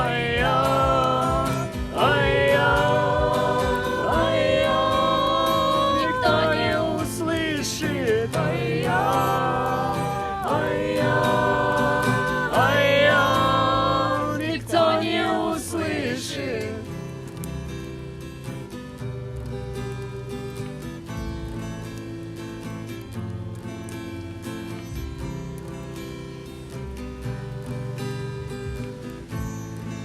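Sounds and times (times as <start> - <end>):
voices singing together: 0.0 - 17.5
strummed acoustic guitar: 0.0 - 30.0.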